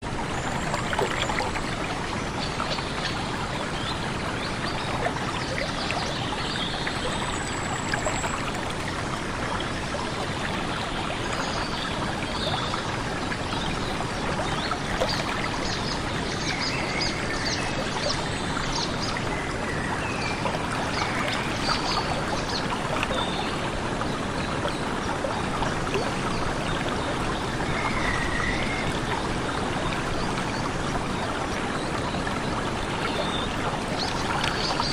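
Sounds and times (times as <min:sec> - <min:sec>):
stream water flowing: 0:00.0 - 0:34.9.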